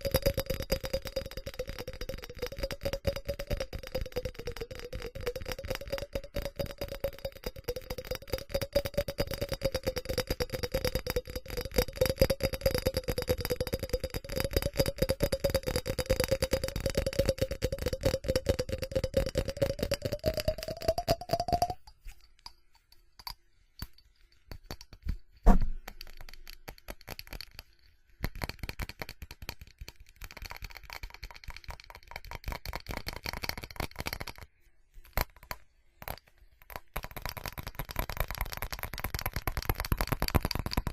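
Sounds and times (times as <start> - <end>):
tapping on ceramic: 0.0 - 40.9
scratching on ceramic: 16.4 - 40.9.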